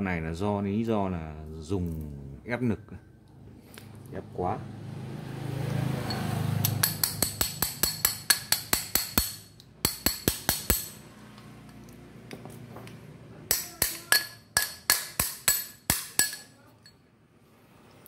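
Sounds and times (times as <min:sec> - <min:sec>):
hammer tapping on metal: 0:06.6 - 0:11.0, 0:12.8 - 0:16.5.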